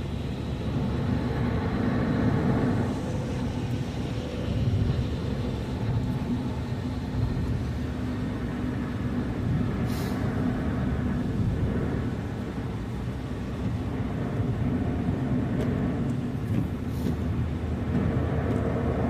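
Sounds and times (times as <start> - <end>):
car engine and road noise: 0.0 - 19.0
brief high hiss: 9.9 - 10.3.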